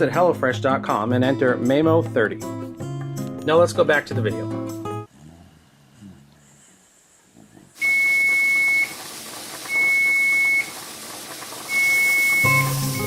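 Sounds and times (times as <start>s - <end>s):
music: 0.0s - 5.1s, 12.4s - 13.0s
steady hiss: 5.6s - 13.0s
long electronic beeps: 11.7s - 13.0s.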